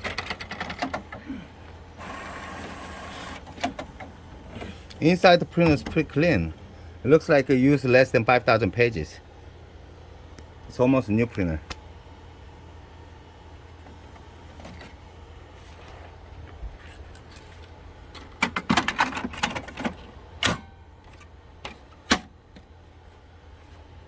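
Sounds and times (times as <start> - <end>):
printer plastic parts clicking: 0.0 - 1.2, 2.1 - 4.7, 18.2 - 20.6.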